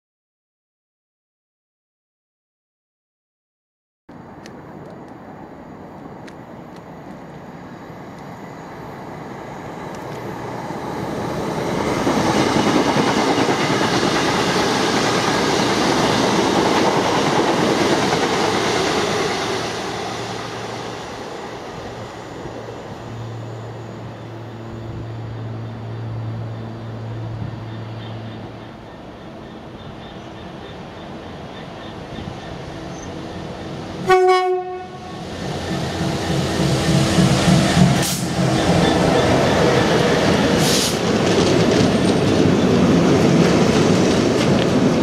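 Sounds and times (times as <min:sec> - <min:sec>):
low locomotive engine hum: 0:04.1 - 0:45.0
train rumble and wheel clatter: 0:04.1 - 0:45.0.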